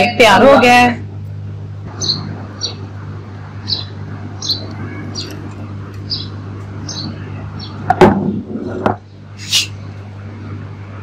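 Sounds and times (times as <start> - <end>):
steady low hum: 0.0 - 11.0
small bird chirping: 2.0 - 2.9, 3.6 - 7.8.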